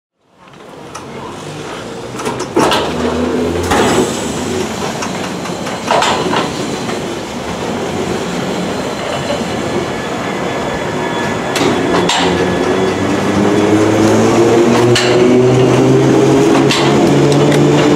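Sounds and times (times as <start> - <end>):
train motor hum: 11.3 - 17.9
train wheels knocking on rail joints: 14.7 - 15.9, 16.5 - 17.9.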